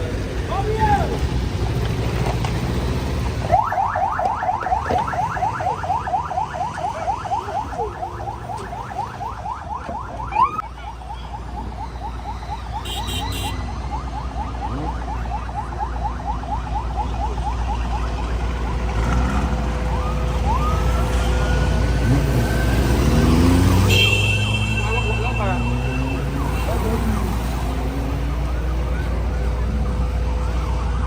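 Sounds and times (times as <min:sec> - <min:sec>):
siren in fast yelp: 0:03.5 - 0:18.8, 0:24.5 - 0:31.0.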